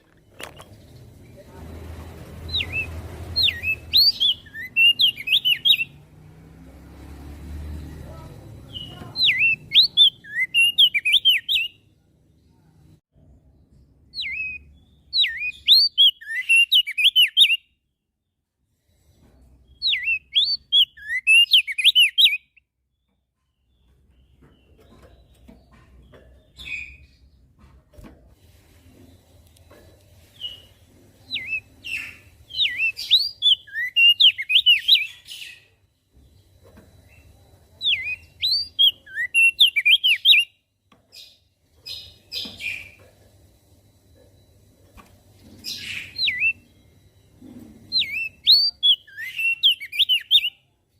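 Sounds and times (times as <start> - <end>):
bird singing quick chirps: 2.4 - 6.0, 8.6 - 11.8, 14.2 - 17.6, 19.7 - 22.6, 30.4 - 35.6, 37.8 - 40.5, 45.6 - 46.6, 47.9 - 50.5.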